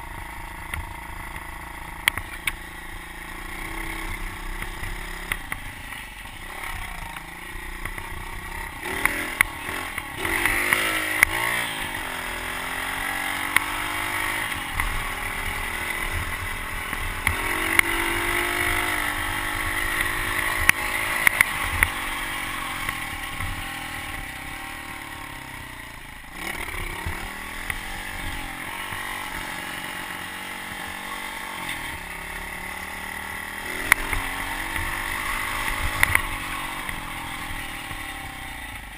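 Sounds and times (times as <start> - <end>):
pit bike engine revving: 0.0 - 38.9.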